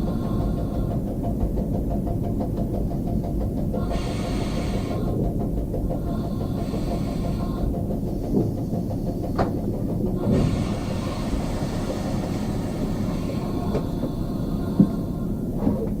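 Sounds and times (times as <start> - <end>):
railcar low rumble: 0.0 - 16.0.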